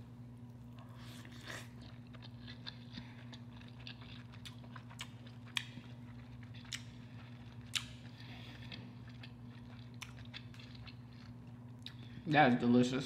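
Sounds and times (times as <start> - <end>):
steady low hum: 0.0 - 13.0
wet chewing mouth smacks: 0.8 - 11.0.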